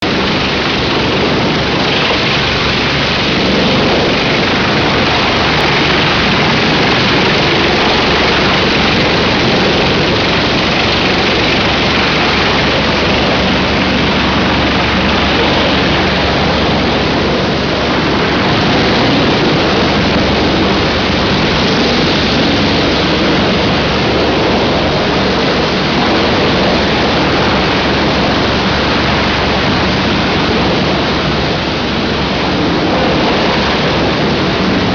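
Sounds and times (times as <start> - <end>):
wood chipper running: 0.1 - 24.1.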